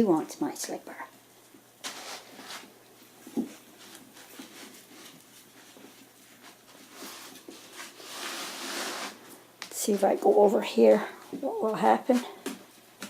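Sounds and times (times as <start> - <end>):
puppy paws clicking and scuffing: 1.5 - 8.0, 9.3 - 13.0.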